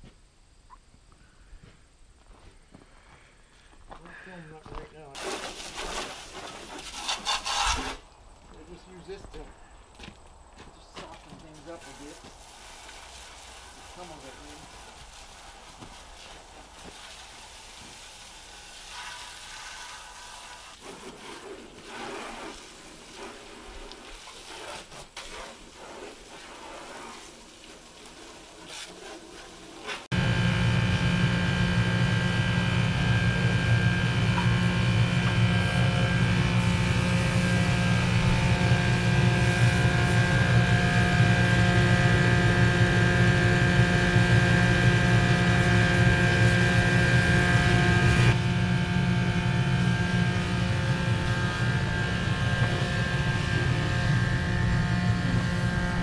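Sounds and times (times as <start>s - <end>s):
loud machine hum with tones: 30.1s - 56.0s.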